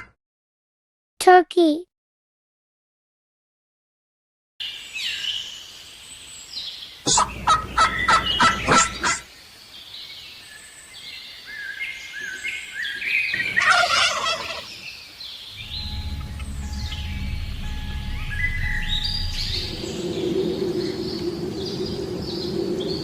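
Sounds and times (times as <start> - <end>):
turkey gobbling: 7.1 - 9.2, 13.4 - 14.7
low rumble: 15.6 - 21.9.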